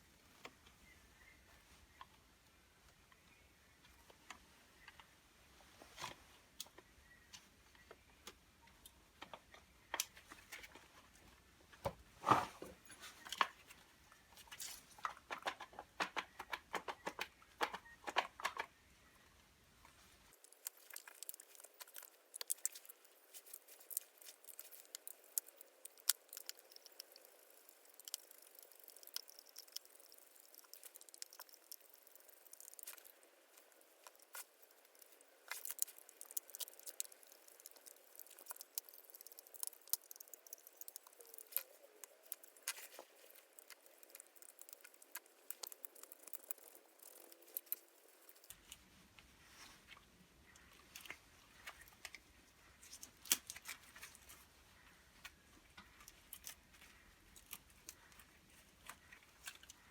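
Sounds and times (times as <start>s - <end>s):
small parts clicking and tapping: 14.4s - 18.8s, 19.8s - 48.8s.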